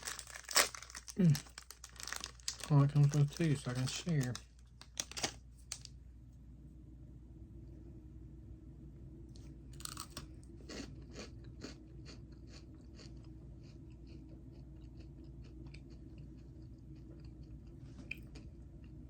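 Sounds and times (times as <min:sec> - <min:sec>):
crunchy biscuit chewing: 0:00.0 - 0:05.8, 0:09.8 - 0:19.0.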